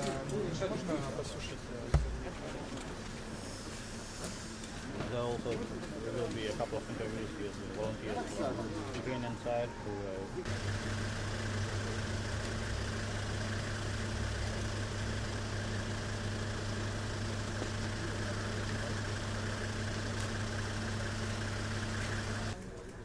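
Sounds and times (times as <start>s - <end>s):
machine engine droning: 10.4s - 22.6s.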